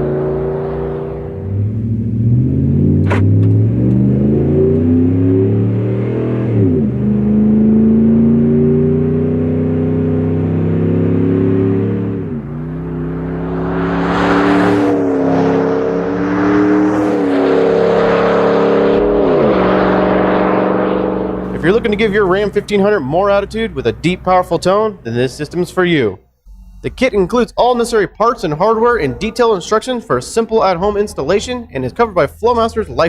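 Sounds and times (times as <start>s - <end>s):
truck engine accelerating: 0.0s - 33.0s
rushing noise: 12.5s - 22.0s.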